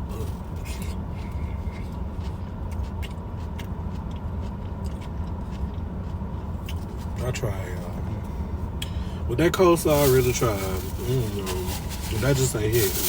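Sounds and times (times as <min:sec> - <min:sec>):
steady low rumble: 0:00.0 - 0:13.0
person chewing: 0:00.1 - 0:07.2.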